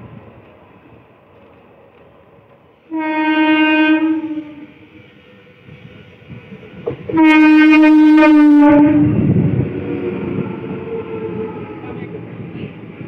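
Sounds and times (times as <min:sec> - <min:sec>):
train coaches rumbling past: 0:00.0 - 0:13.0
train horn blast: 0:02.9 - 0:05.3, 0:06.9 - 0:09.4.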